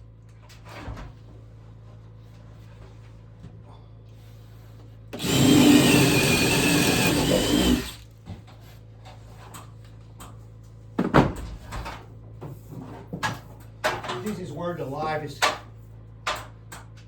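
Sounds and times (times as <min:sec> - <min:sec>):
power drill whining: 0:05.2 - 0:08.1.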